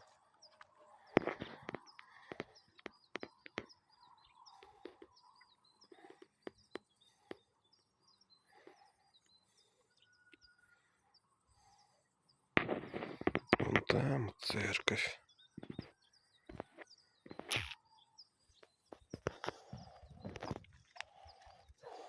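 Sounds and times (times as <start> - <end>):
songbird chirping: 0.0 - 22.0
twigs snapping underfoot: 17.4 - 17.8.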